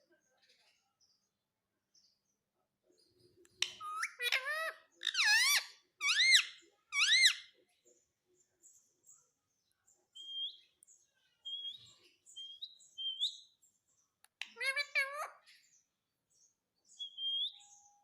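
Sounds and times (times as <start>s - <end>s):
parakeet chirp: 3.5s - 7.6s, 10.2s - 13.6s, 14.3s - 15.7s, 16.9s - 18.0s
parakeet screeching: 3.7s - 7.5s, 14.5s - 15.4s.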